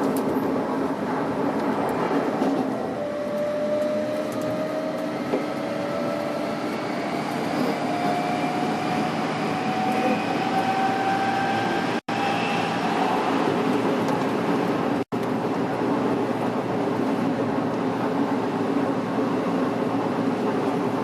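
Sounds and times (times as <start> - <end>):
wheel and track rumble: 0.0 - 21.0
train motor whine rising: 2.7 - 13.7.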